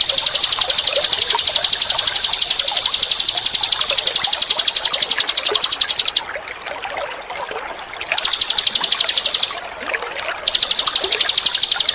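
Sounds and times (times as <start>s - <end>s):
songbird trilling: 0.0s - 6.4s, 8.1s - 9.6s, 10.5s - 11.9s
running water trickling: 0.0s - 11.9s.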